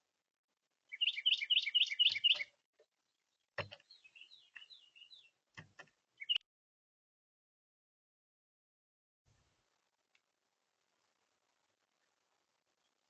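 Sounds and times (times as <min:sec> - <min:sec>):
bird twittering chirps: 0:00.9 - 0:02.5, 0:03.6 - 0:05.4, 0:06.2 - 0:06.4
songbird whistled notes: 0:00.9 - 0:02.5, 0:06.2 - 0:06.4.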